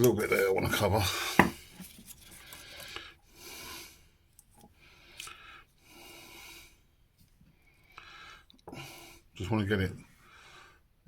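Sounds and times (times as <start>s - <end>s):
man breathing slowly: 2.2s - 9.4s, 10.2s - 11.0s.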